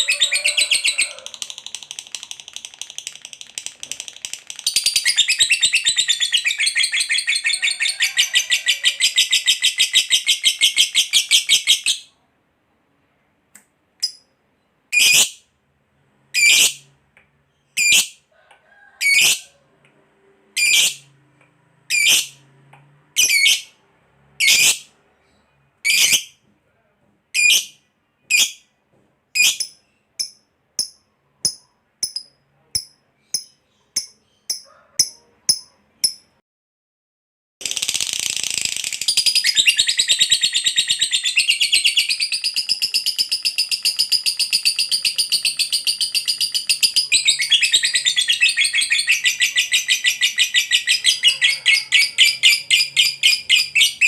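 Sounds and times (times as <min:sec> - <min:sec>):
sharp high bird calls: 0:39.3 - 0:54.0
bird chattering trill: 0:41.3 - 0:54.0.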